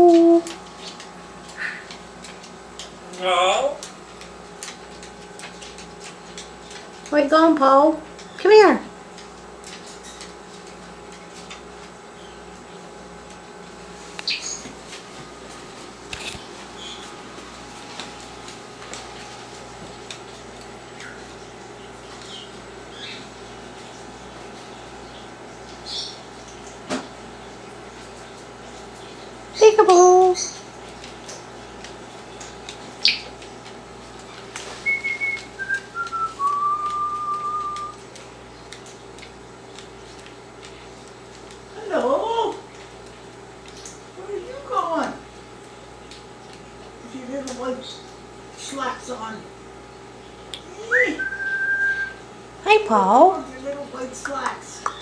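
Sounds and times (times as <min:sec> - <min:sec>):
steady low hum: 0:00.0 - 0:55.0
person whistling: 0:34.8 - 0:38.0, 0:50.9 - 0:52.2.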